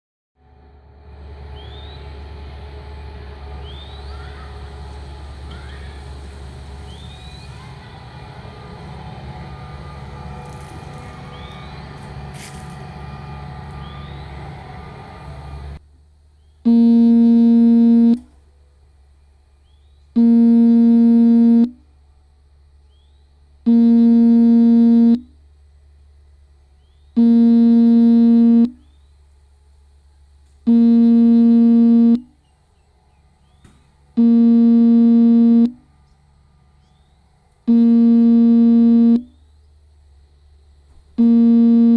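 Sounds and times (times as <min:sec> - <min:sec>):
engine rumble: 0:00.4 - 0:41.9
faint low hum: 0:08.9 - 0:41.9
loud buzzing electronic tone: 0:16.7 - 0:18.2, 0:20.2 - 0:21.8, 0:23.7 - 0:25.3, 0:27.2 - 0:28.8, 0:30.7 - 0:32.3, 0:34.2 - 0:35.8, 0:37.7 - 0:39.3, 0:41.2 - 0:41.9.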